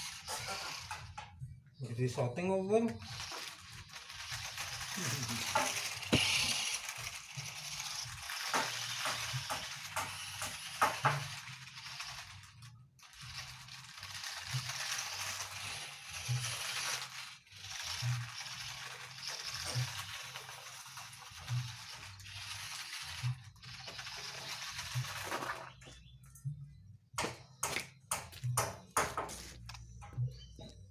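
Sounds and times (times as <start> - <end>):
toy car motor whirring: 0.0 - 1.5, 2.8 - 25.9
plastic rattling: 3.0 - 25.9.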